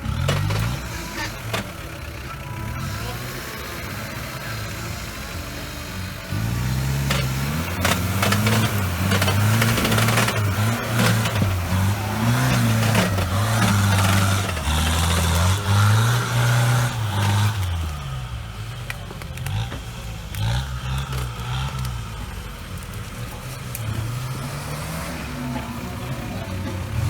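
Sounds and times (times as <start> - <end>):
vehicle engine revving: 0.0 - 27.0.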